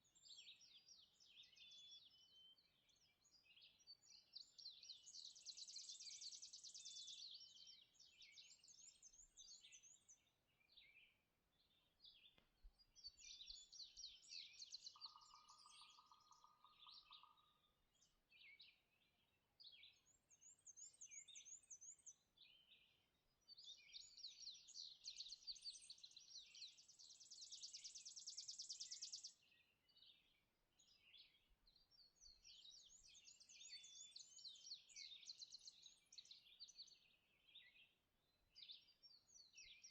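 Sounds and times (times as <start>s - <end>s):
songbirds singing: 0.0s - 39.9s
low pulsed bird trill: 13.1s - 18.2s.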